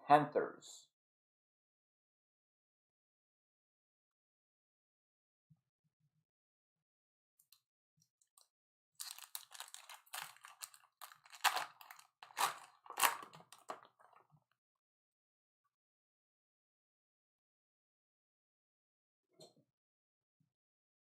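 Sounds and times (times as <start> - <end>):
card pack wrapper crinkling: 9.0 - 14.2.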